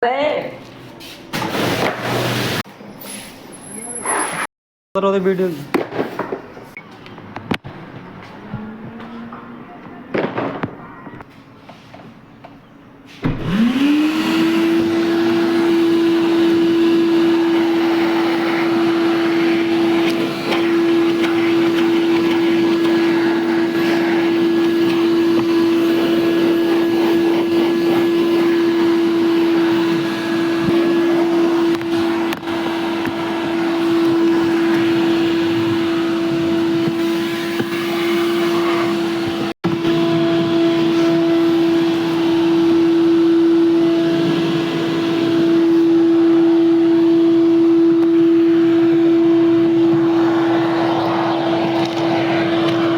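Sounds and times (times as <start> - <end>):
car-wash electric motor hum: 13.4 - 52.9.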